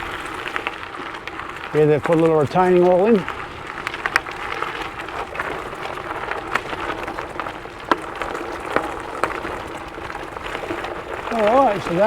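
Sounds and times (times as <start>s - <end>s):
bike tyres rolling on gravel: 0.0s - 12.0s.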